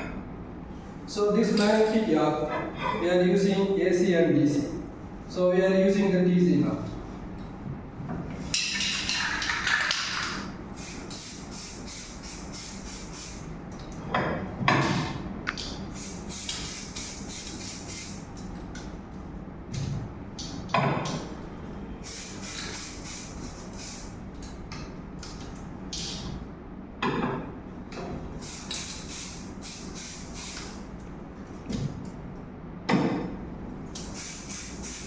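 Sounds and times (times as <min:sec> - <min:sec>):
low steady hum: 0:00.0 - 0:09.2
aerosol can hissing bursts: 0:10.8 - 0:13.4, 0:15.9 - 0:18.2, 0:22.0 - 0:24.1, 0:28.4 - 0:30.8, 0:34.0 - 0:35.0.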